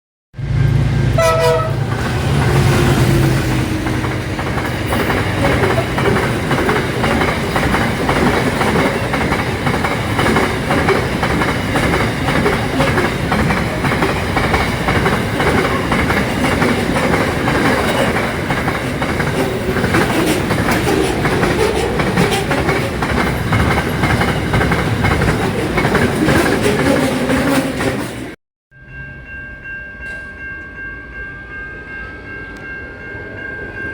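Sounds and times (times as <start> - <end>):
train passing close by: 0.4 - 33.9
train wheels clicking over rail joints: 1.7 - 28.4.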